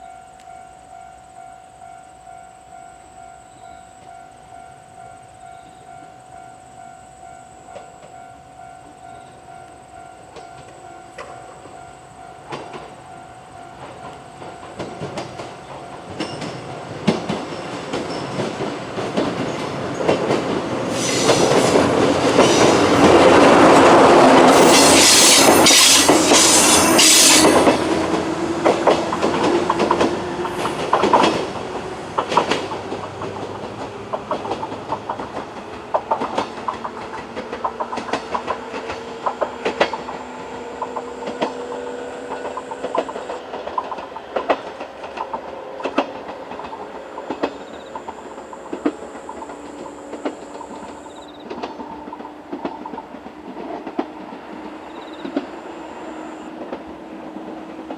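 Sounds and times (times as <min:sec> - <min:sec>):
electric train passing: 0:00.0 - 0:57.9
wheel clacks over rail joints: 0:13.8 - 0:55.5.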